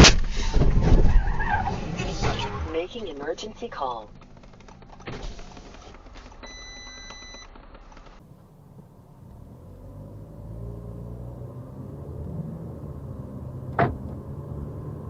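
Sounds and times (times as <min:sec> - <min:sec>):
vehicle engine rumbling: 0:00.0 - 0:15.0
electronic beep: 0:06.4 - 0:07.5.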